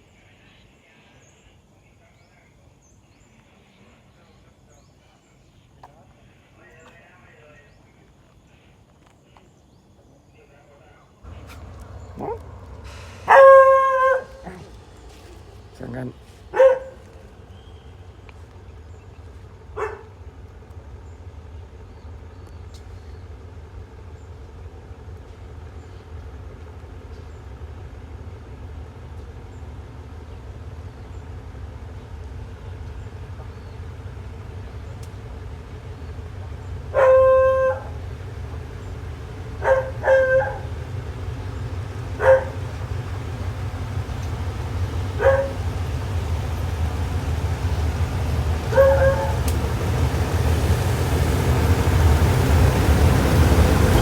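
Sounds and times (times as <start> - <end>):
low wind rumble: 11.2 - 54.0
dog barking: 11.3 - 14.8, 16.5 - 17.1, 19.7 - 20.2, 36.9 - 38.0, 39.6 - 40.8, 42.2 - 42.6, 45.2 - 45.6, 48.7 - 49.5.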